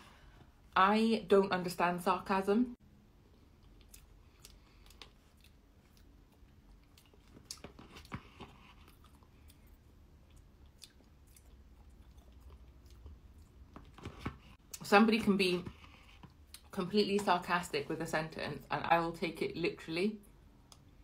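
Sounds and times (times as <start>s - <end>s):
chewing and mouth sounds: 3.2s - 14.6s.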